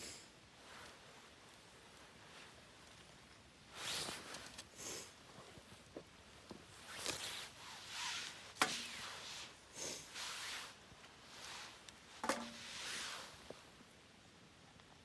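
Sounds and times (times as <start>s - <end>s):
firewood rustling and scraping: 6.7s - 13.7s.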